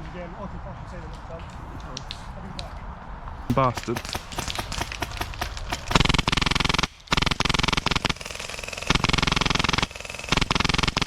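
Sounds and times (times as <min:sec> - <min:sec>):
airsoft gun firing full-auto: 0:03.6 - 0:11.0.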